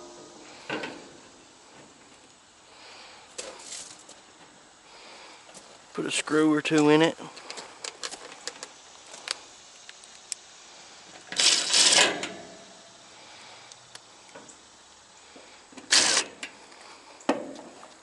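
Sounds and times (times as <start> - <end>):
power driver driving screws into metal: 11.3 - 12.5, 15.8 - 16.4.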